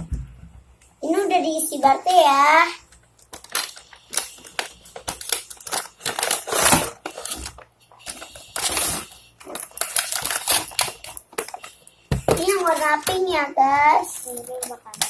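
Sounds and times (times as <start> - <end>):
plastic packaging rustling: 3.0 - 15.0.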